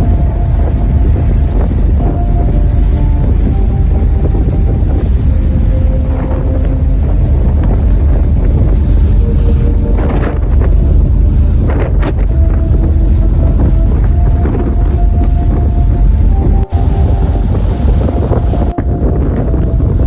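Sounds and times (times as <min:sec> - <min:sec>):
ship engines rumbling: 0:00.0 - 0:20.0
wind buffeting microphone: 0:00.0 - 0:20.0
faint held tones: 0:12.2 - 0:19.8.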